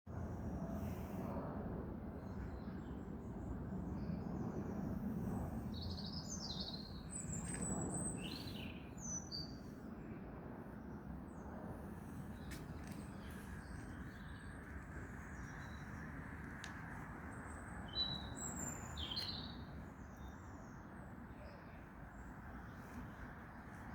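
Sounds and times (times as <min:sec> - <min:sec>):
songbirds chirping: 0:05.7 - 0:09.9, 0:10.8 - 0:23.9.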